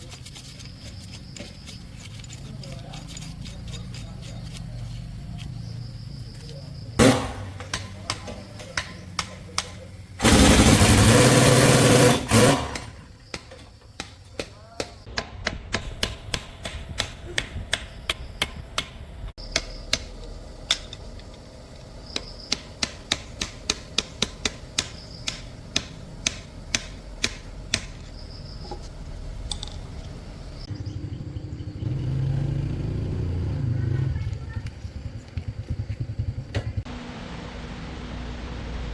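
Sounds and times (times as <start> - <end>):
loud hiss: 10.0 - 12.9
hammering on metal: 13.3 - 20.1, 22.1 - 28.0.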